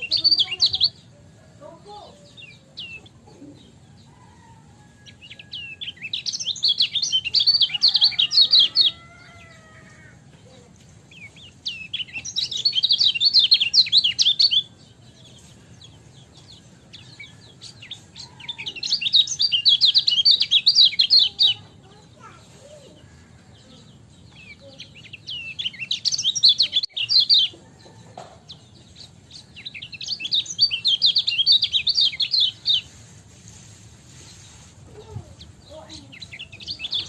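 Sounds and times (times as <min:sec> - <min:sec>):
bird chattering chirps: 0:00.0 - 0:01.1, 0:34.2 - 0:37.0.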